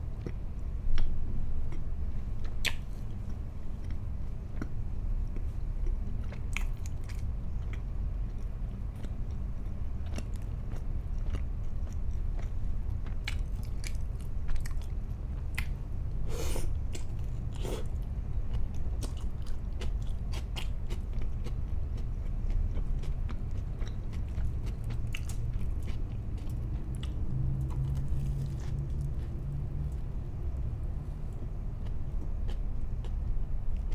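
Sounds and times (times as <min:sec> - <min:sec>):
steady low hum: 0:00.0 - 0:33.9
person biting and chewing food: 0:16.3 - 0:18.0, 0:23.8 - 0:30.0.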